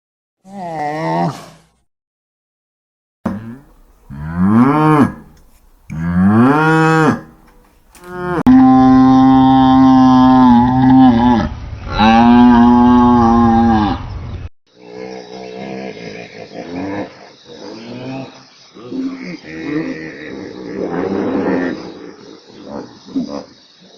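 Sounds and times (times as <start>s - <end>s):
cow mooing: 3.3s - 11.2s.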